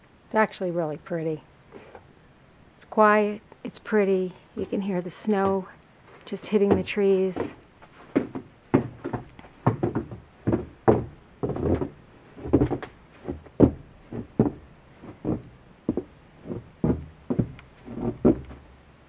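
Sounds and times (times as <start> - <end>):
footsteps walking: 4.6 - 18.7.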